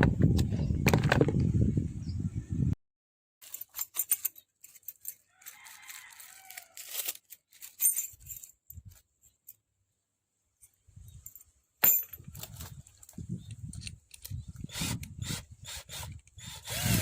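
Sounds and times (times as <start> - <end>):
packaging crinkling: 4.7 - 7.8
light metallic rattles: 10.6 - 14.5
clicks of handled parts: 10.6 - 15.2.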